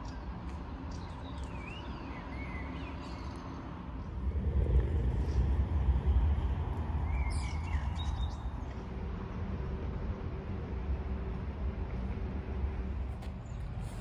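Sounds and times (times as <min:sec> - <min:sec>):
uneven low rumble: 0:04.0 - 0:14.0.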